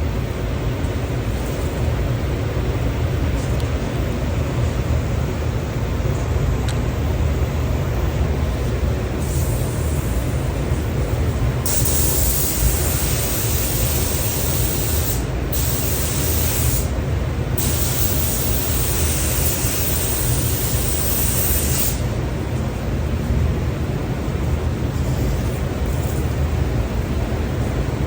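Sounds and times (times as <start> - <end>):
paint spray gun hissing: 11.7 - 17.0, 17.6 - 22.2.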